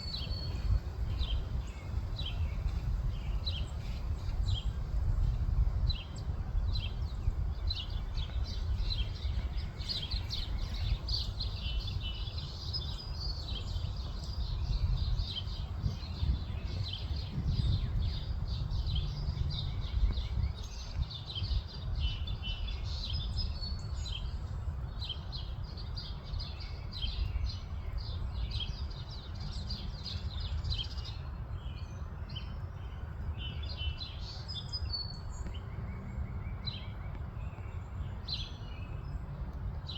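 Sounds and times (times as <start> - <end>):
steady low rumble: 0.0 - 20.9
songbirds chirping and singing: 0.0 - 39.9.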